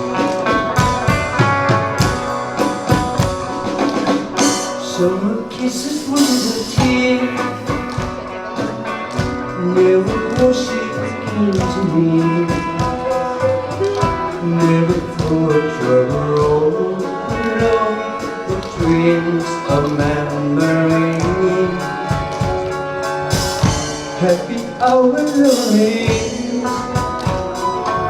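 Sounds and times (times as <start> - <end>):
melodic lead: 0.0 - 19.1
band playing instrumental pop: 0.0 - 28.0
guitar: 0.0 - 28.0
steady drum beat: 0.0 - 28.0.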